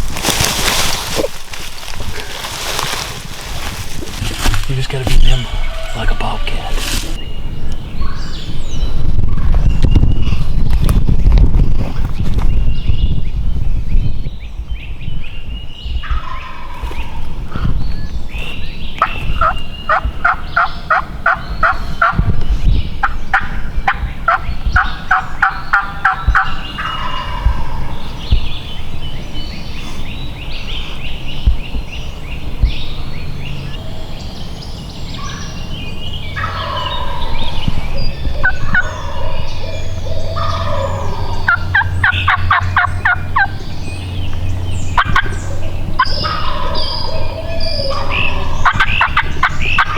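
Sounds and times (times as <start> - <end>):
wild turkey gobbling: 16.0 - 17.3, 19.0 - 22.3, 23.0 - 28.2, 36.4 - 43.7, 44.8 - 49.9.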